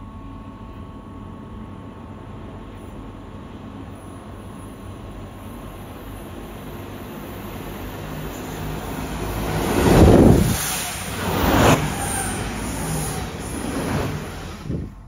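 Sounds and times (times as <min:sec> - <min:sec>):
passenger train passing: 0:03.4 - 0:15.0.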